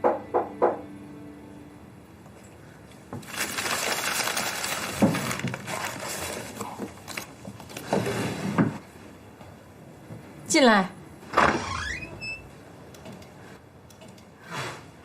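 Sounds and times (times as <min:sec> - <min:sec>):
rustling crinkling noise: 0:02.9 - 0:08.0.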